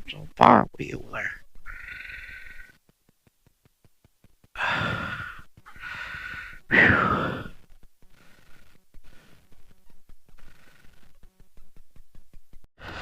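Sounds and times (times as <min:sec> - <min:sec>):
person exhaling heavily: 0:04.6 - 0:07.6.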